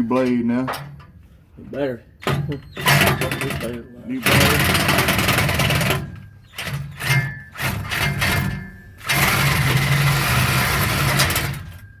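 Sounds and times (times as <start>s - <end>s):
reciprocating saw cutting metal pipe: 4.2s - 11.8s.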